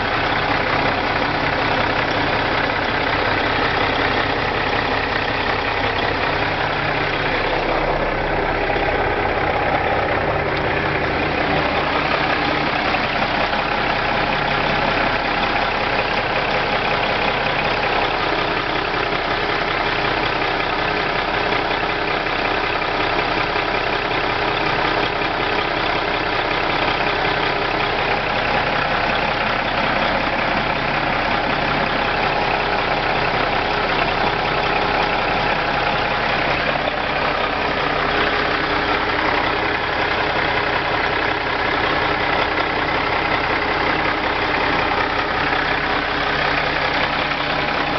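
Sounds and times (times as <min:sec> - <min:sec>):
diesel truck engine idling: 0:00.0 - 0:47.9.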